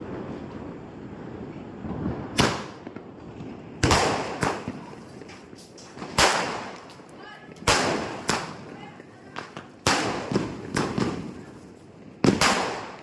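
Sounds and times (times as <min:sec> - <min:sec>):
firework bangs with echo: 0:02.3 - 0:03.1, 0:03.8 - 0:13.0.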